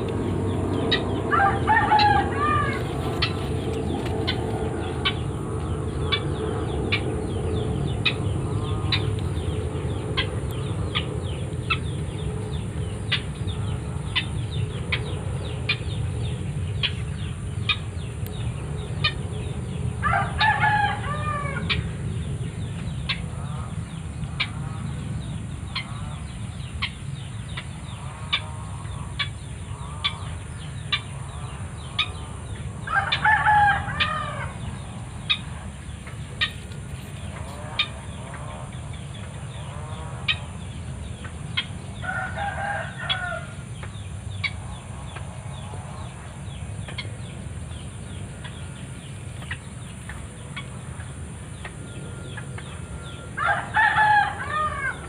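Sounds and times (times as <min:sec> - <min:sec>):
roosters crowing: 0:00.0 - 0:07.4, 0:19.7 - 0:22.2, 0:31.2 - 0:40.6, 0:41.5 - 0:46.2, 0:48.5 - 0:55.0
steady low rumble: 0:00.0 - 0:55.0.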